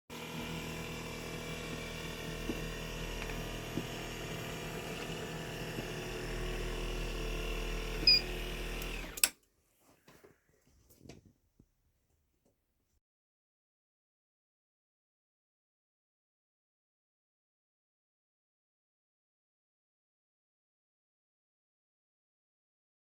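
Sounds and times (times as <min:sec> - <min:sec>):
stairlift motor running: 0:00.1 - 0:09.3.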